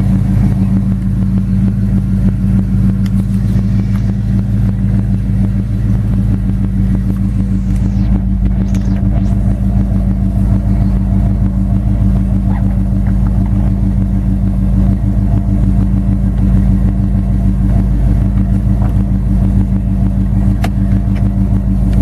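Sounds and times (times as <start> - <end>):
car engine running steadily: 0.0 - 22.0.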